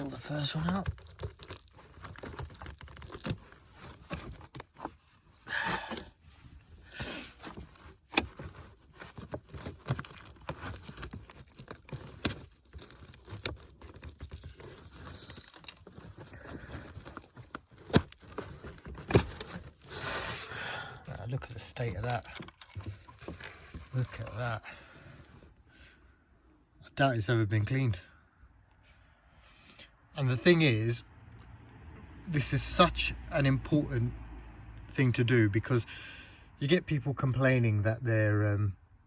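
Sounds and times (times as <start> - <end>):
air filter scraping and crinkling: 0.0 - 26.0.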